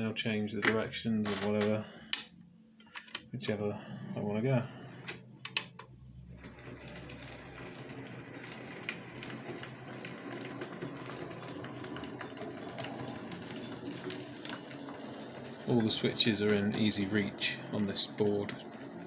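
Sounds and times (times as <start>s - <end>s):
point motors clicking: 5.1s - 5.9s
model locomotive motor whirr: 6.3s - 19.0s
wheels ticking over rail joints: 6.4s - 19.0s.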